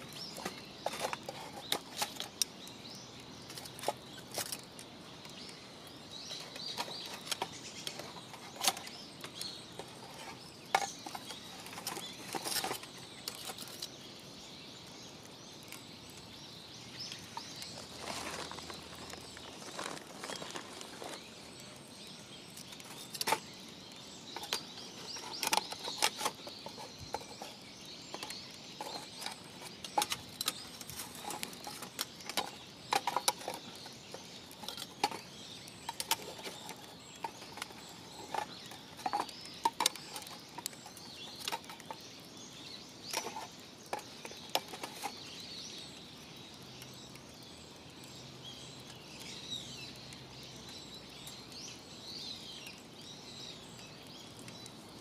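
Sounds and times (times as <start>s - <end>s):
birds chirping faintly: 0.0s - 55.0s
campfire crackling and popping: 0.0s - 55.0s.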